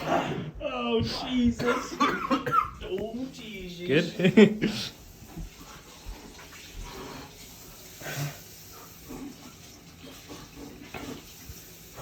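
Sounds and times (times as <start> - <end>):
mouth and breathing noises: 4.7 - 12.0.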